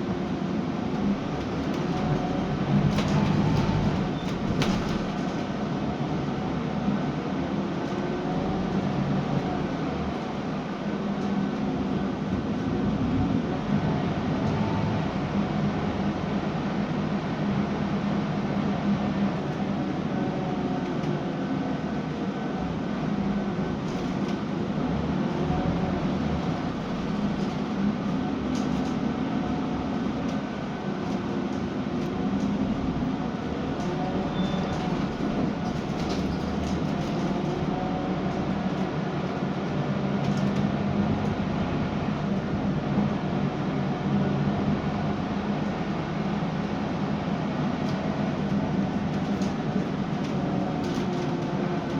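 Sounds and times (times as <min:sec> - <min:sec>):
bus diesel engine running: 0:00.0 - 0:51.9
road and drivetrain rumble: 0:00.2 - 0:07.0.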